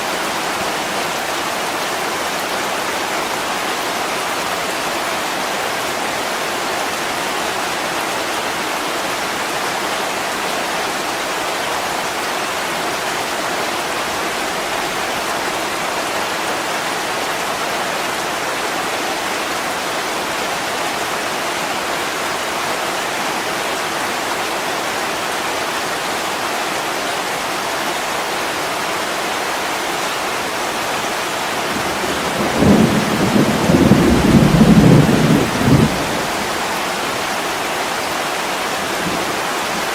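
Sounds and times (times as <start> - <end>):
heavy rain on a window: 0.0 - 39.9
rolling thunder: 31.8 - 36.8.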